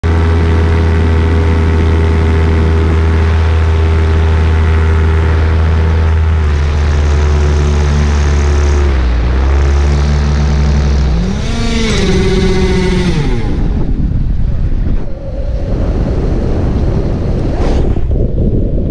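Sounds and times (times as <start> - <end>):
paramotor engine running: 0.0 - 15.1.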